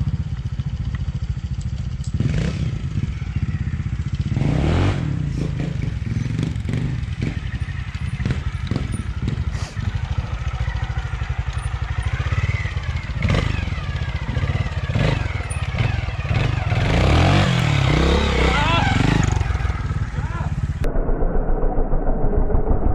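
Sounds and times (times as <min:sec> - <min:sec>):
knocks and clatter of motorcycle: 0:00.0 - 0:04.6, 0:05.6 - 0:17.9
motorcycle engine revving: 0:00.0 - 0:20.9.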